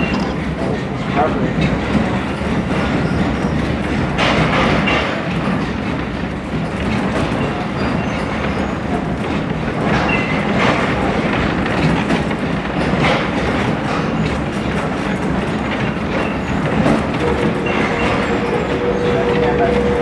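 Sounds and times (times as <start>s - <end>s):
train coach rumble: 0.0s - 20.0s
wheels clacking over rail joints: 0.0s - 20.0s.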